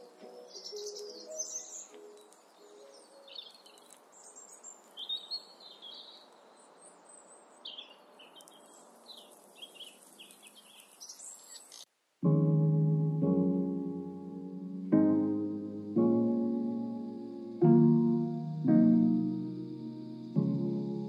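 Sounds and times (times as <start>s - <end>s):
soft lo-fi music: 0.0s - 4.2s, 12.2s - 21.0s
songbirds chirping: 0.0s - 21.0s.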